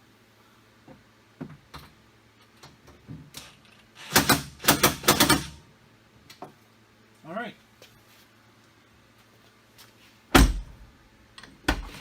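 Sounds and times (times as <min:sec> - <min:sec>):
impact driver hammering: 0:04.0 - 0:05.6.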